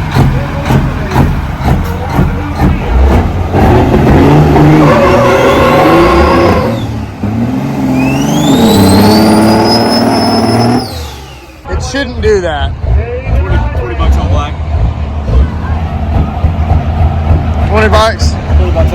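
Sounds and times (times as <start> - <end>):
diesel truck engine accelerating: 0.0 - 18.9
turbo whistle: 4.7 - 7.0, 7.9 - 11.6.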